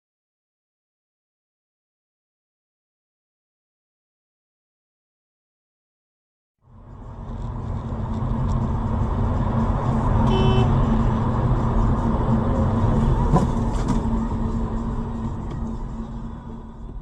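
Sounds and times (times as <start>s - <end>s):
car driving rumble: 6.6s - 17.0s
brief tone: 10.2s - 11.0s.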